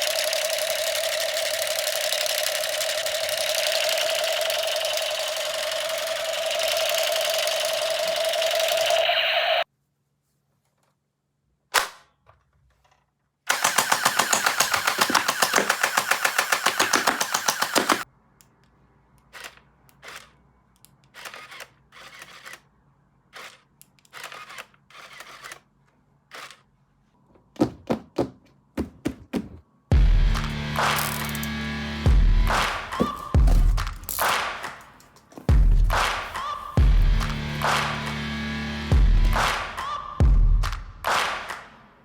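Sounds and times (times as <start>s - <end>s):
toy gun machine-gun effect: 0.0s - 9.6s, 13.5s - 18.1s, 21.1s - 22.6s, 23.4s - 25.6s, 26.3s - 26.6s.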